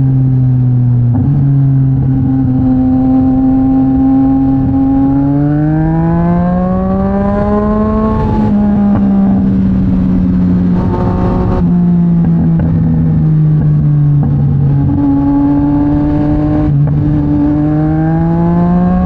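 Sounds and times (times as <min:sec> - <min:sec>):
motorcycle engine accelerating: 0:00.0 - 0:19.0
wind rushing: 0:02.1 - 0:13.2.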